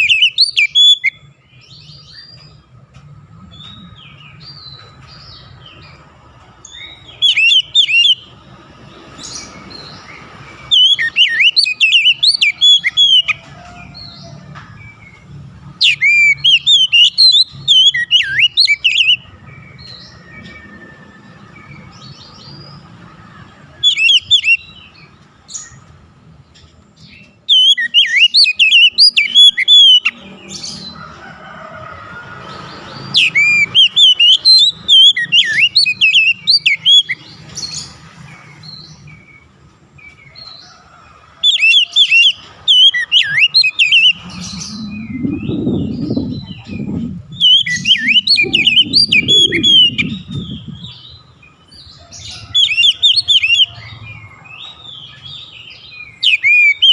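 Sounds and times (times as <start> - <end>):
bird singing whistled phrases: 0.0 - 1.2, 47.3 - 51.0
low rumbling noise: 43.8 - 52.5.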